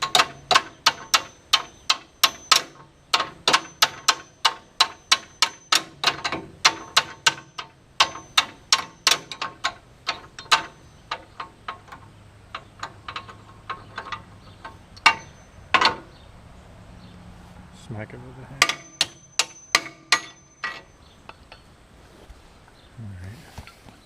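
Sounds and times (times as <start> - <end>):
hammer tapping on steel: 18.6 - 21.6.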